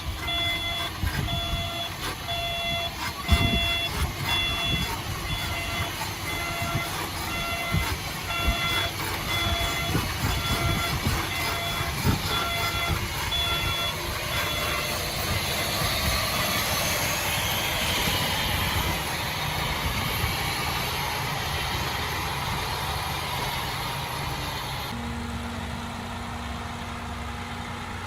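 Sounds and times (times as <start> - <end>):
heavy diesel engine running: 0.0 - 28.0
backup alarm beeping: 0.2 - 15.4.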